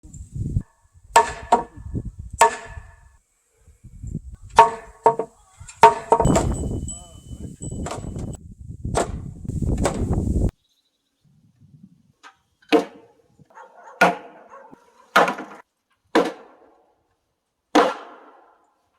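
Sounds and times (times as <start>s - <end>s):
sharp ringing strikes on timber: 1.2s - 1.7s, 2.4s - 2.8s, 4.6s - 8.4s.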